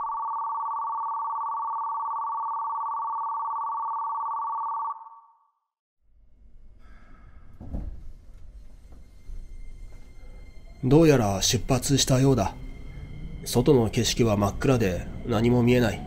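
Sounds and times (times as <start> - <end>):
low rumble of train starting: 6.6 - 16.0
thump: 7.6 - 8.2.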